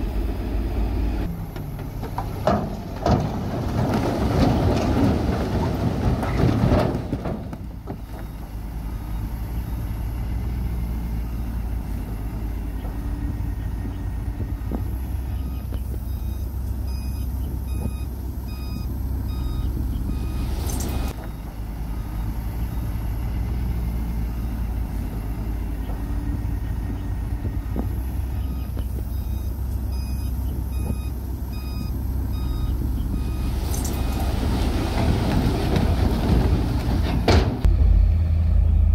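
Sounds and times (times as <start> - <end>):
diesel engine running: 0.0 - 38.9
reversing alarm beeping: 15.2 - 23.4, 28.3 - 34.4.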